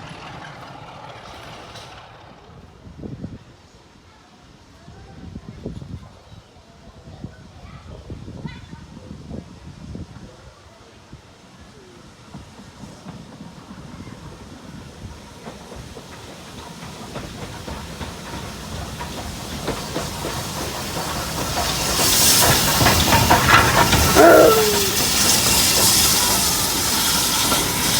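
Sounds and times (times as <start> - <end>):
steam train approaching: 0.0 - 27.9
steam hissing: 11.2 - 27.9
wheels knocking over rail joints: 17.2 - 27.9.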